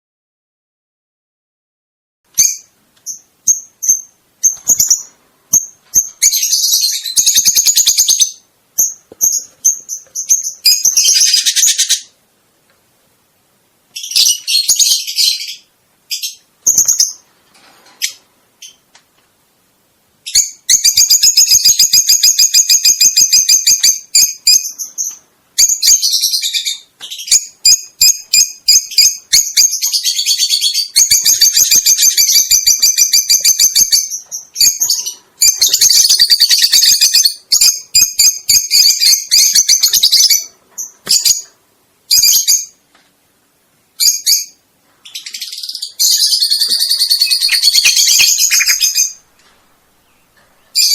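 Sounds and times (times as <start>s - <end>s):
small bird singing trills: 2.4s - 12.1s, 20.2s - 41.5s, 44.0s - 49.2s, 50.0s - 50.9s.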